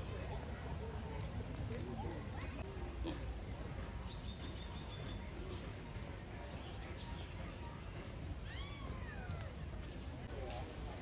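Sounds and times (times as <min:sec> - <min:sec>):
small birds chirping: 0:02.4 - 0:05.7, 0:06.4 - 0:10.3.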